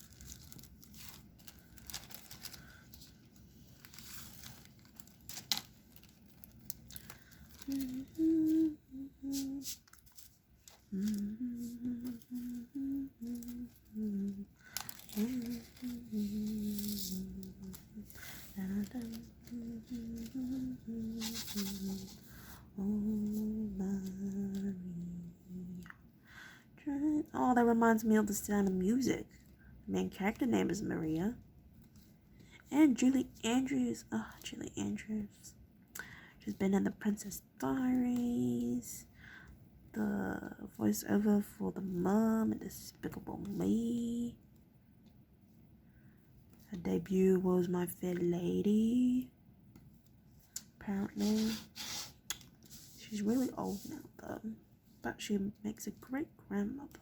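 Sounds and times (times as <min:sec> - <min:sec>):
woman humming: 0:07.6 - 0:09.7, 0:10.9 - 0:14.5, 0:15.1 - 0:22.2, 0:22.8 - 0:25.9.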